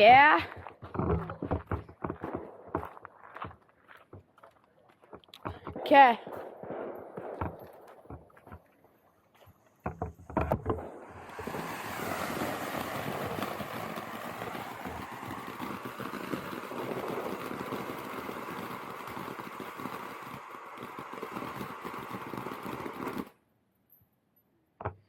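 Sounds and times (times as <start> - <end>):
firework hissing crackle: 10.8 - 23.4.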